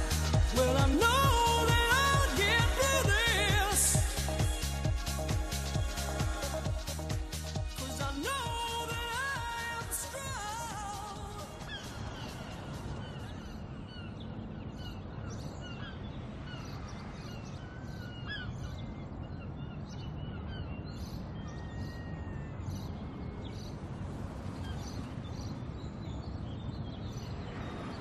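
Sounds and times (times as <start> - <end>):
low outdoor rumble: 0.0 - 11.8
birds chirping: 0.0 - 28.0.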